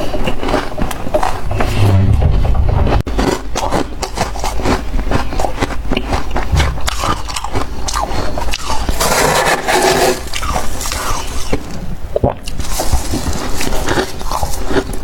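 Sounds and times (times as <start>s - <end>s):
frost being chewed: 0.0s - 1.5s, 3.1s - 9.0s, 10.3s - 15.0s.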